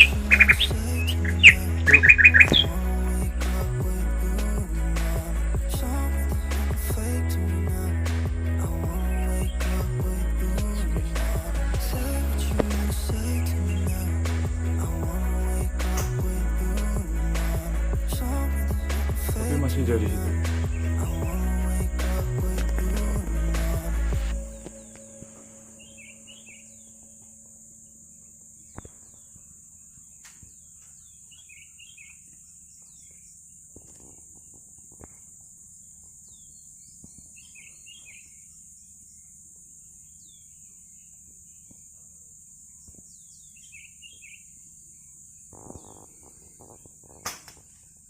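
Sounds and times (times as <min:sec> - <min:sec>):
short bird chirps: 0:00.0 - 0:02.7
high insect drone: 0:00.0 - 0:08.0, 0:08.6 - 0:48.0.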